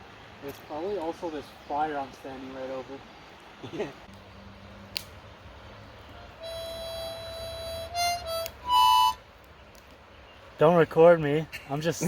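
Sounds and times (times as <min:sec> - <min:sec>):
harmonica playing: 0:06.4 - 0:09.2.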